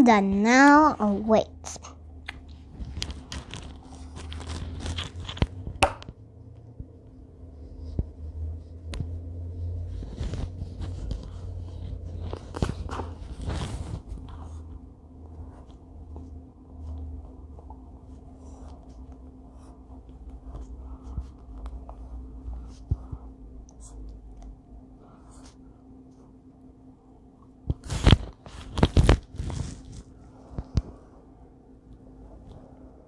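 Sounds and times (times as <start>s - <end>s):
pencil scratching on paper: 9.6s - 15.7s.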